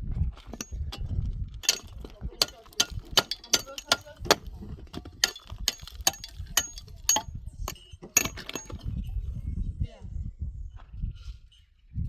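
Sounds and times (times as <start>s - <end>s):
hard objects clinking and knocking: 0.5s - 9.0s.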